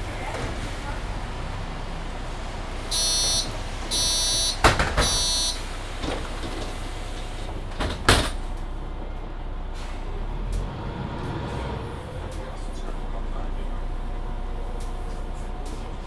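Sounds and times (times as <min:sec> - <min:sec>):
bus doors shutting with knocks: 0:00.0 - 0:12.9
bus engine low hum: 0:00.0 - 0:16.0
door warning beeps: 0:02.9 - 0:05.7.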